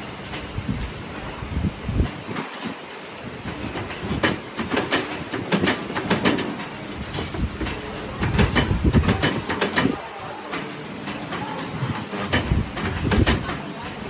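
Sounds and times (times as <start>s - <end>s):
sharp metallic knocks and clanks: 3.7s - 10.0s.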